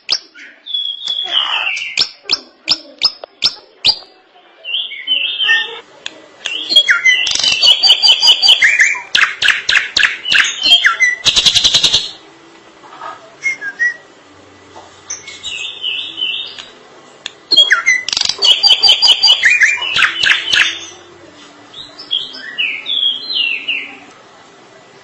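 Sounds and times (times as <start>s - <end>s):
bird singing: 0.0s - 5.8s, 6.5s - 12.2s, 15.1s - 16.7s, 17.5s - 21.1s, 21.7s - 24.1s
bird chattering notes: 6.5s - 12.2s, 17.5s - 21.1s.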